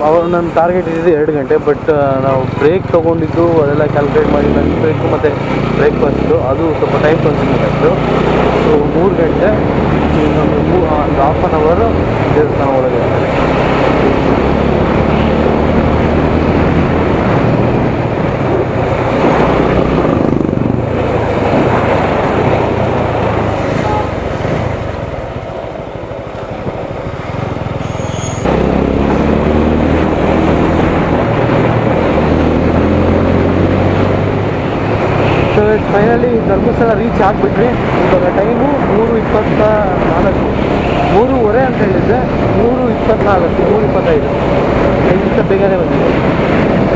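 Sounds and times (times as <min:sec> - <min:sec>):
wind and road noise: 0:00.0 - 0:46.9
motorcycle engine running: 0:13.0 - 0:33.7.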